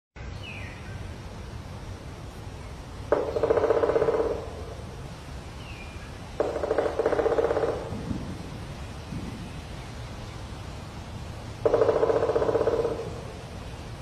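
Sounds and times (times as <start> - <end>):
woodpecker drumming on tree: 3.0 - 5.1, 6.2 - 9.6, 11.5 - 13.6
steady low rumble: 7.9 - 11.7.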